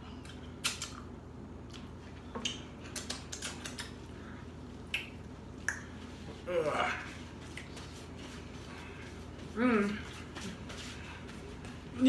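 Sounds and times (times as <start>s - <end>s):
low room hum: 0.0s - 12.0s
chewing clicks and taps: 1.7s - 4.0s.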